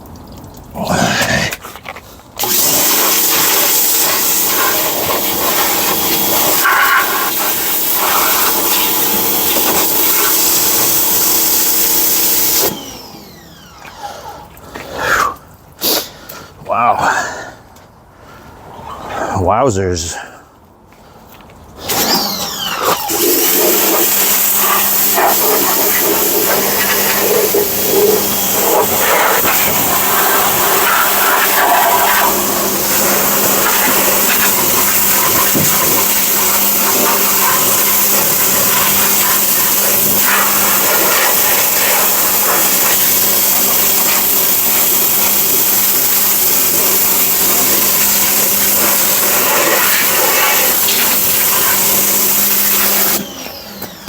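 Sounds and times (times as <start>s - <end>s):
spray hissing: 2.4s - 12.8s, 22.8s - 53.2s
pressure washer motor hum: 2.4s - 14.9s, 21.8s - 54.0s.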